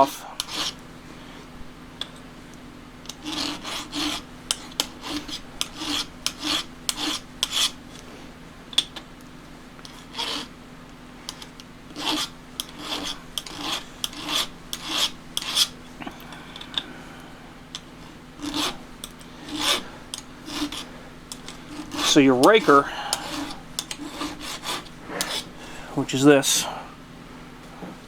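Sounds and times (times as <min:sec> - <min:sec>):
file rasping on steel: 0:00.0 - 0:01.4, 0:03.0 - 0:08.2, 0:09.8 - 0:10.6, 0:11.2 - 0:16.0, 0:17.7 - 0:25.7.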